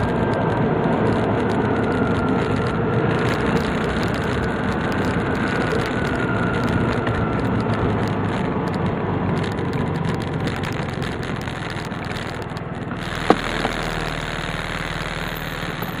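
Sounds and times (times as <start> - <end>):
engine running at low revs: 0.0 - 16.0.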